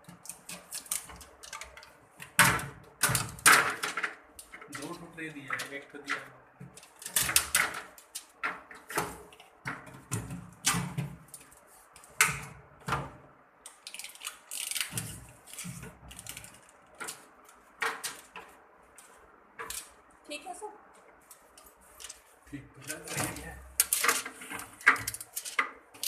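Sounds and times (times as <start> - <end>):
knocks and rattles of fridge parts: 0.0 - 13.3, 22.9 - 25.8.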